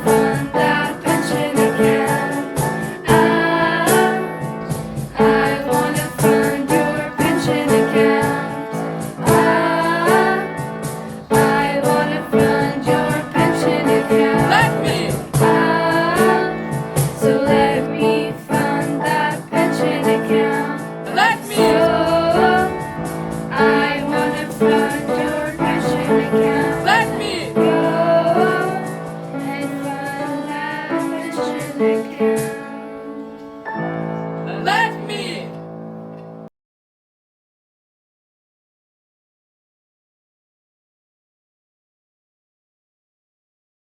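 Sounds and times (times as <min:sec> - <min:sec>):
song with singing voice: 0:00.0 - 0:33.7.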